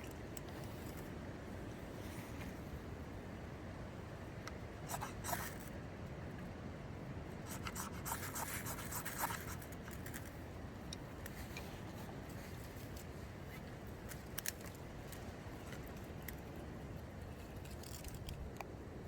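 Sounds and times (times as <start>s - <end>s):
low rush of wind: 0.0s - 19.0s
sharp scraping strokes: 7.5s - 10.3s.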